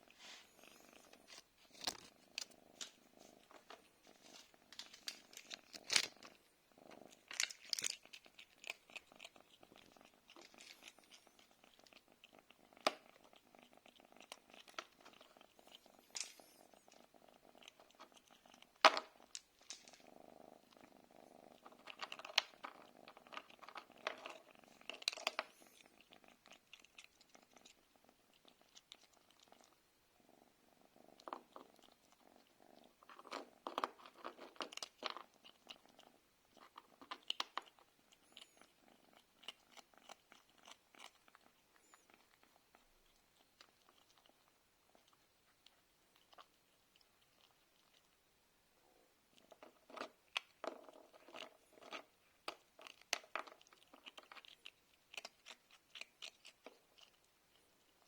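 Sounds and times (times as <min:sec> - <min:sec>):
cat purring: 0:00.0 - 0:58.0
sharp clicks and crunches: 0:04.4 - 0:06.4.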